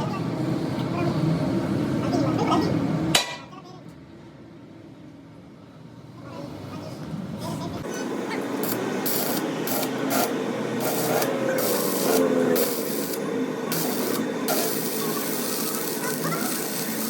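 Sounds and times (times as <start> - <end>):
high hiss: 8.6 - 17.0.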